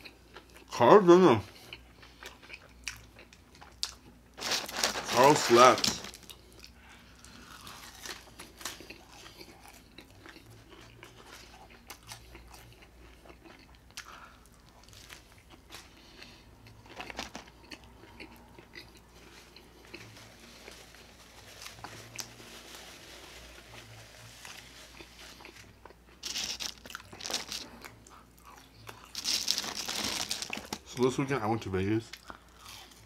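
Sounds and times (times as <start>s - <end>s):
crisp crunches: 3.8s - 6.4s, 7.2s - 12.4s, 19.8s - 27.7s, 28.4s - 31.1s
burger being bitten and chewed: 23.6s - 30.9s.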